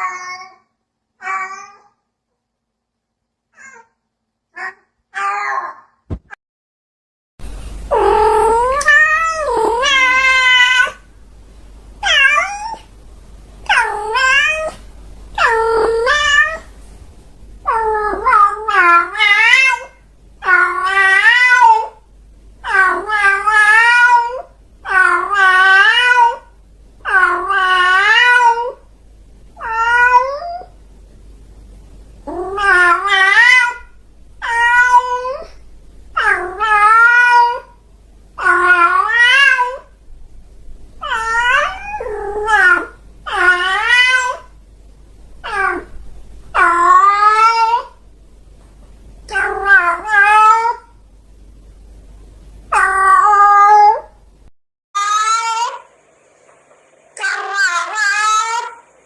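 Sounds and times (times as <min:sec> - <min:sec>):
cat meowing: 0:00.0 - 0:02.0, 0:03.6 - 0:03.9, 0:04.6 - 0:06.0, 0:07.9 - 0:11.0, 0:12.0 - 0:12.9, 0:13.6 - 0:14.8, 0:15.4 - 0:16.7, 0:17.7 - 0:22.0, 0:27.1 - 0:28.8, 0:29.6 - 0:30.7, 0:32.3 - 0:35.6, 0:36.2 - 0:37.8, 0:38.4 - 0:39.9, 0:41.0 - 0:44.5, 0:45.4 - 0:46.0, 0:46.6 - 0:48.0, 0:49.3 - 0:51.0, 0:52.7 - 0:54.2, 0:55.0 - 0:55.9, 0:57.2 - 0:58.8.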